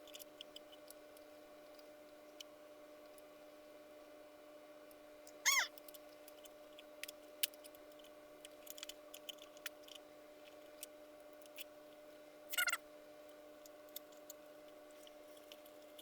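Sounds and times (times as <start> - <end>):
electrical hum: 0.0 - 16.0
short squeak: 5.5 - 5.7.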